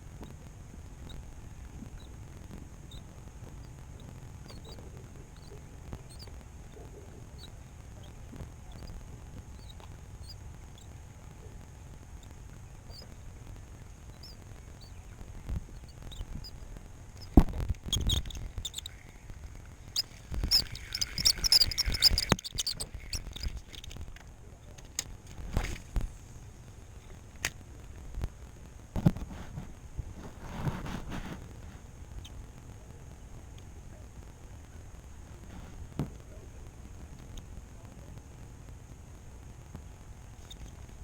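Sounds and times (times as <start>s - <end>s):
rattling: 17.2s - 24.3s.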